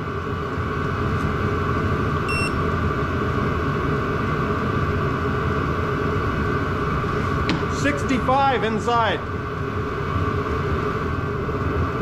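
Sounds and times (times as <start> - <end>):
parking heater humming: 0.0 - 12.0
short electronic beep: 2.3 - 2.6.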